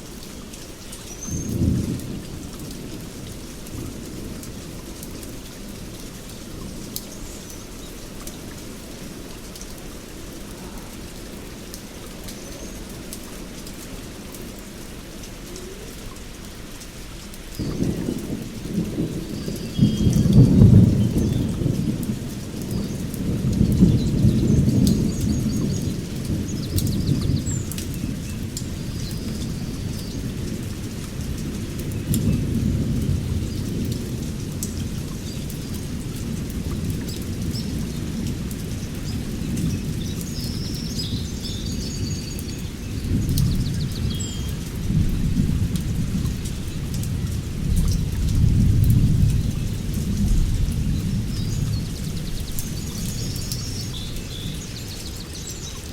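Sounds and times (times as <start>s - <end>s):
steady rain: 0.0s - 55.9s
thunder rumbling: 17.6s - 42.0s, 42.7s - 54.7s.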